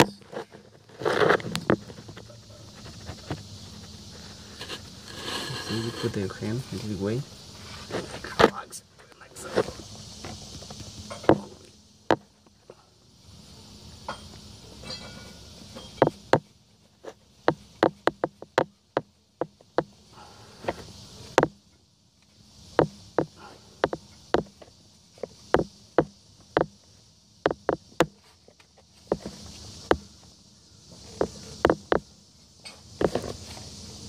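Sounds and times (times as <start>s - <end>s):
hand tools tapping engine parts: 0.0s - 0.6s, 10.2s - 12.8s, 14.1s - 20.0s, 22.8s - 26.8s, 27.4s - 30.1s, 31.1s - 33.3s
faint steady hiss: 0.0s - 34.0s.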